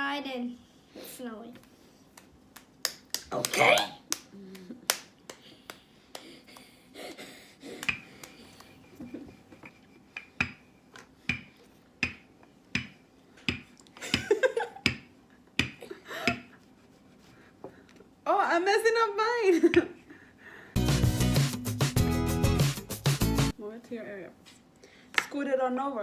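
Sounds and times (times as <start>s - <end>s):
sharp taps and clicks on tabletop: 7.8s - 8.3s, 10.1s - 16.5s.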